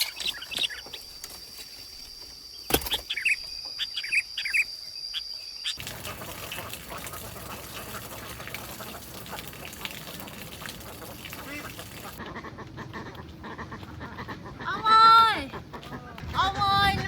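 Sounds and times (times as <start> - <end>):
high-pitched insect drone: 0.0 - 5.8.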